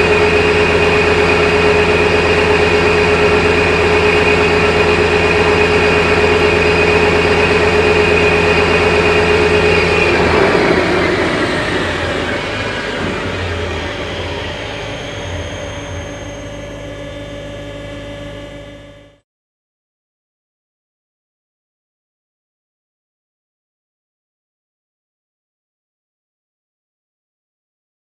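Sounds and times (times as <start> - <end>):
electric motor whining: 0.0 - 19.2.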